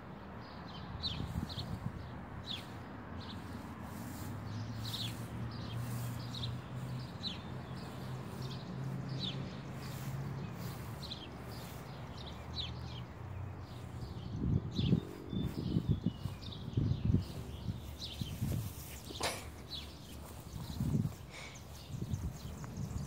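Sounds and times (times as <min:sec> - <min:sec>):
bird chirping: 0:05.8 - 0:23.0.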